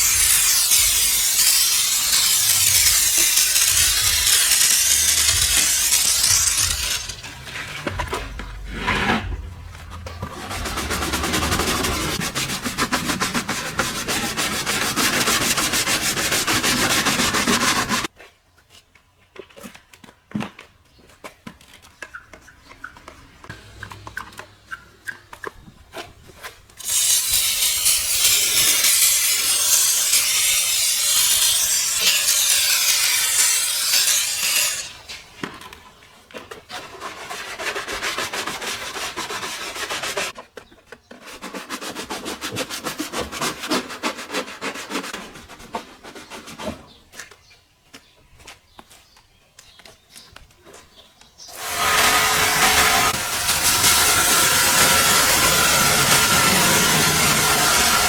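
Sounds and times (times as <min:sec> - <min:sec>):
scrubbing on a car surface: 0:00.0 - 0:18.1.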